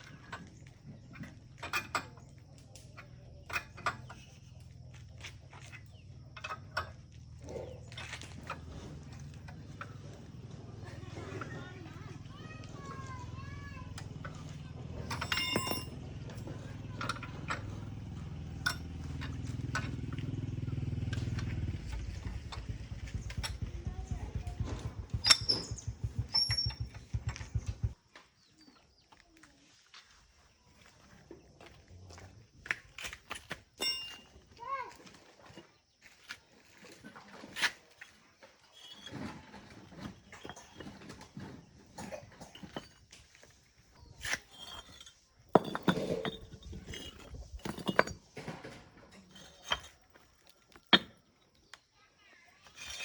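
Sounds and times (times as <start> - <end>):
hand tools clinking on metal: 0.0 - 23.7, 24.6 - 27.9, 33.0 - 34.5, 38.6 - 51.7, 52.6 - 53.0
engine running: 2.5 - 28.0
faint bird chirps: 21.9 - 27.8.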